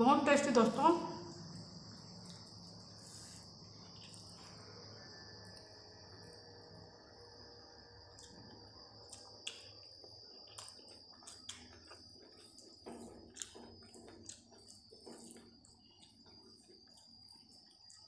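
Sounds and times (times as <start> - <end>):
steady high-pitched whine: 0.0 - 18.0
person chewing and lip-smacking: 8.2 - 18.0.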